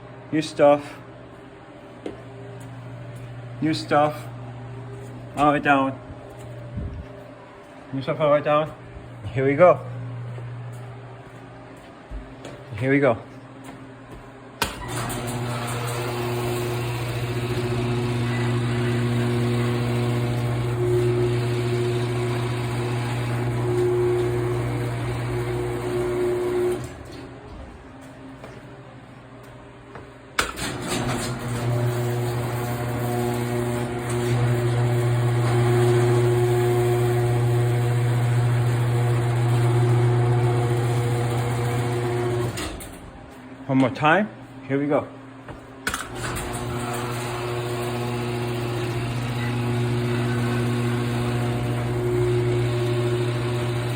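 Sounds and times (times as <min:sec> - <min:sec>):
garage door opener motor hum: 0:13.9 - 0:29.1, 0:30.0 - 0:43.6, 0:45.4 - 0:53.9.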